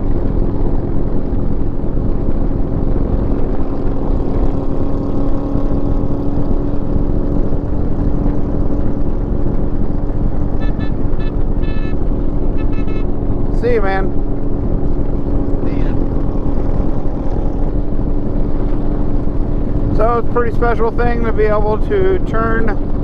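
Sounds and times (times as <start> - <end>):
motorcycle engine running: 0.0 - 23.0
wind rushing over microphone: 0.0 - 23.0
short pitched sounds: 10.5 - 14.3.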